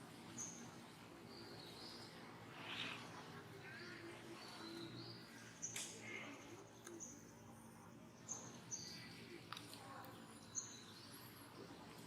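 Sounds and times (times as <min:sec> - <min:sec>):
birds chirping: 0:00.3 - 0:05.9.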